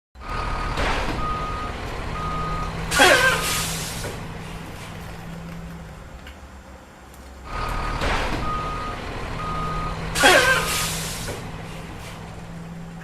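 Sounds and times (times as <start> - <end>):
low engine hum: 0.2 - 13.0
reversing alarm beeping: 0.3 - 4.1, 7.9 - 11.3
loud hiss: 0.5 - 5.0, 7.5 - 12.6.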